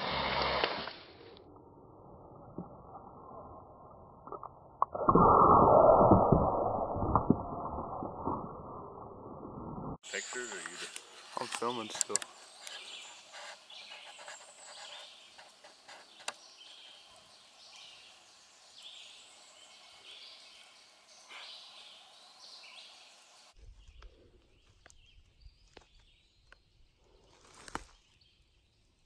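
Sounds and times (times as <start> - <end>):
faint bird song: 10.0 - 29.0.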